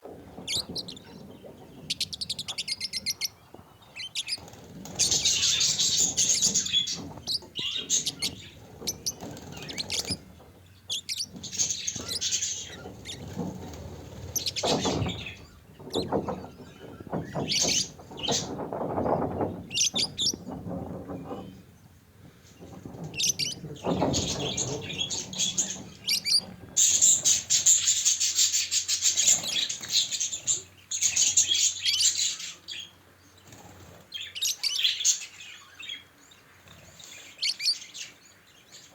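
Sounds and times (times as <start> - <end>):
budgerigars chirping and chattering: 0.3 - 20.5, 22.6 - 38.9.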